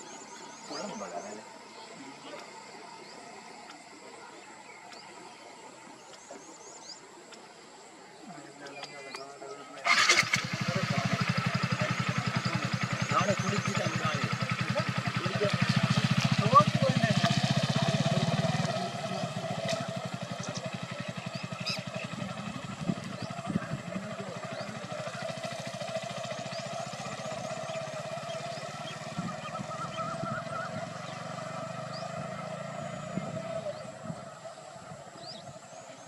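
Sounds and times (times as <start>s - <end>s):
bird chirps: 0.0s - 36.0s
vehicle engine running: 9.8s - 36.0s.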